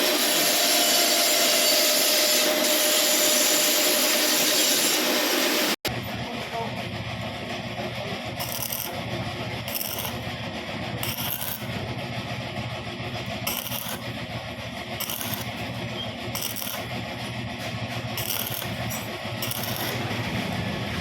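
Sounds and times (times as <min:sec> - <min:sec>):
power tool grinding metal: 0:00.0 - 0:05.8, 0:08.3 - 0:11.9, 0:13.2 - 0:21.0
steady machine hum: 0:05.2 - 0:21.0.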